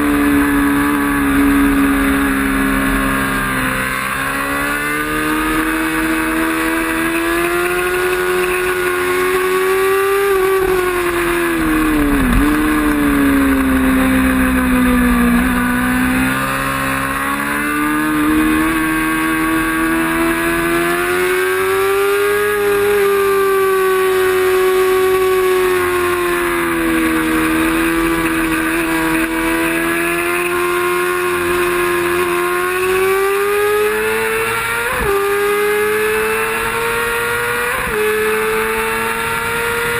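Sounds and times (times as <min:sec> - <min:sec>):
racing motorcycle engine: 0:00.0 - 0:39.9.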